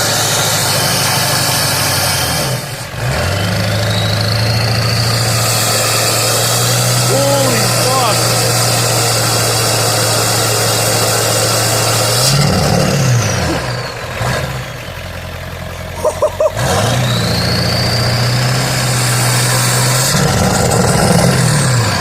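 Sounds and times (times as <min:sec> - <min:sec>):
diesel truck engine revving: 0:00.0 - 0:22.0
turbo whistle: 0:16.0 - 0:18.5.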